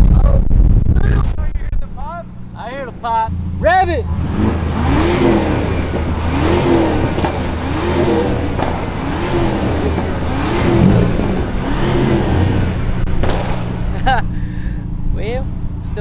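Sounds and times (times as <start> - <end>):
exhaust pops crackling: 0.0 - 16.0
car engine revving: 0.1 - 16.0.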